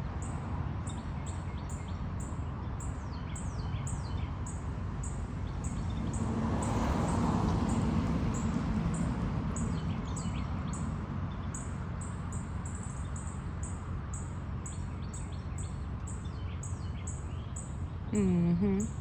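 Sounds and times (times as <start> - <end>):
person speaking: 18.2 - 19.0.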